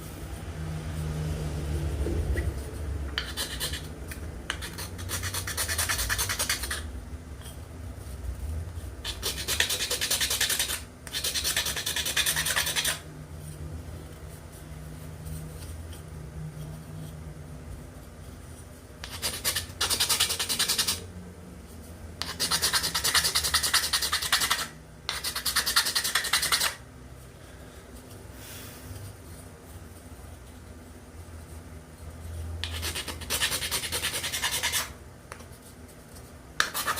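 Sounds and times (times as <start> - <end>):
abrasive tool rubbing wood: 2.4 - 6.9.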